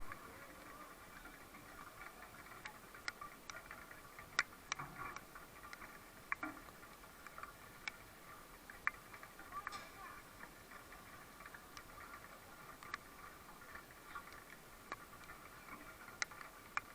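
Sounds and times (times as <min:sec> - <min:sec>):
distant indistinct voices: 0:00.1 - 0:04.2, 0:09.3 - 0:14.4.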